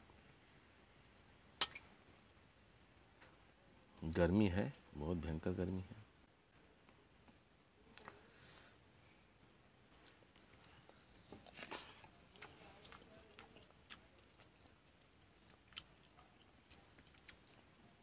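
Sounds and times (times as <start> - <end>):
small mouth clicks: 1.6 - 1.9
quiet chewing: 6.8 - 8.4, 9.9 - 18.0.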